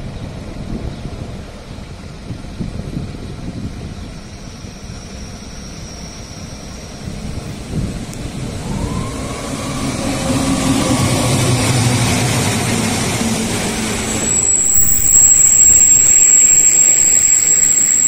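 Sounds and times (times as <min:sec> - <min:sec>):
locomotive rumble: 0:00.0 - 0:18.0
traction motor whine: 0:04.9 - 0:18.0
deep hum: 0:07.8 - 0:15.4.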